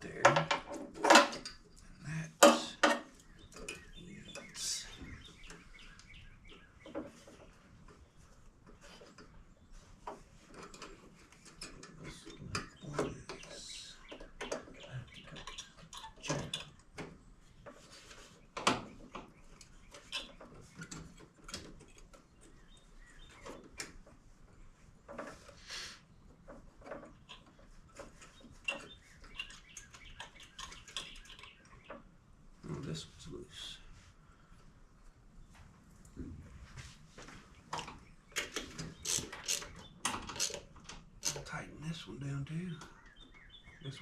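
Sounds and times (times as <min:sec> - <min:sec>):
hand tools clicking and scraping: 0:37.8 - 0:41.6.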